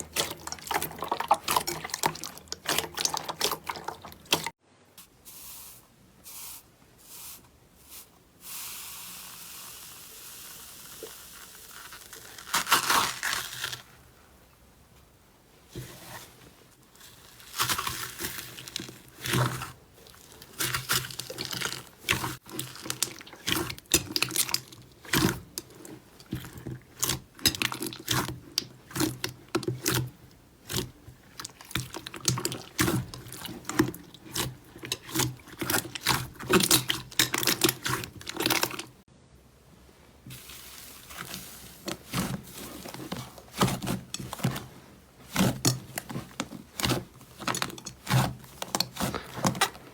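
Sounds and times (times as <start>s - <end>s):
slime squelching by hand: 0.0s - 4.6s, 16.9s - 39.0s, 40.2s - 49.9s.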